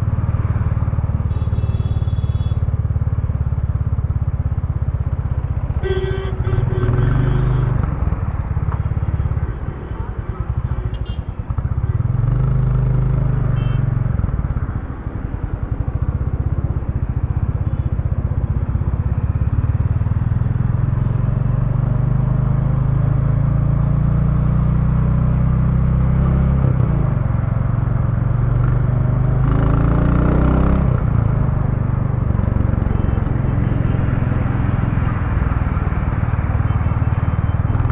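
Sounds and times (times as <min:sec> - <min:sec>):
motorcycle engine accelerating: 0:18.6 - 0:35.6.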